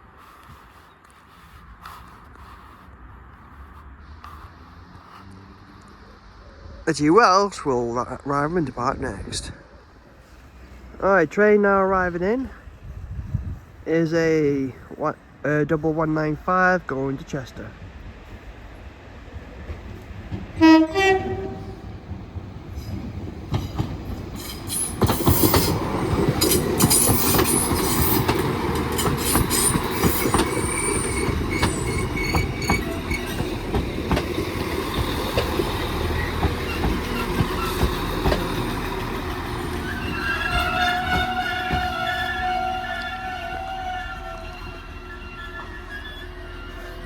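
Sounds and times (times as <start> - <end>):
train rumble with wheel clatter: 0.0 - 6.4, 7.5 - 47.0
train engine whine: 17.4 - 47.0
two-tone train horn: 20.6 - 21.9, 39.8 - 47.0
brake squeal: 24.4 - 47.0.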